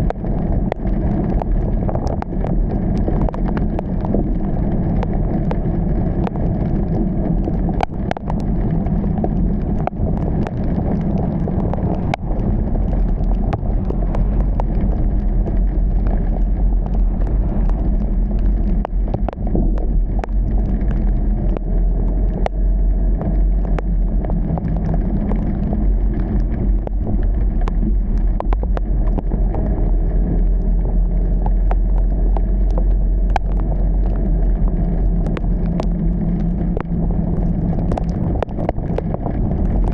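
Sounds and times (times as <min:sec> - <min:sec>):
car driving on wet road: 0:00.0 - 0:39.9
heavy rain: 0:00.0 - 0:39.9
sharp ticks: 0:30.4 - 0:39.9.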